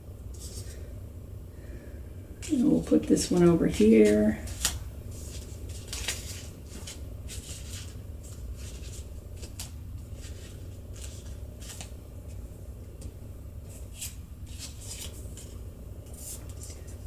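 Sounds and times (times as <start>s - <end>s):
low steady hum: 0.0s - 17.0s
leaves rustling and tapping: 2.4s - 12.4s, 13.7s - 17.0s.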